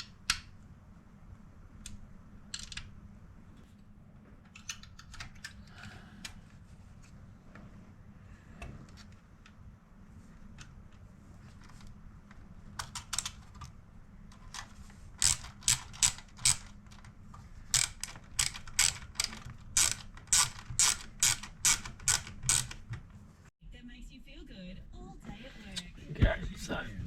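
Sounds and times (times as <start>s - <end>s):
sharp ratchet-like clicks: 15.2s - 16.8s, 17.7s - 22.8s
low steady hum: 22.7s - 27.0s.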